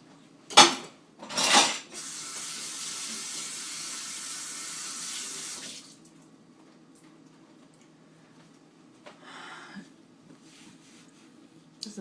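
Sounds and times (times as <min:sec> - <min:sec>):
kitchen tap running: 0:01.9 - 0:06.1.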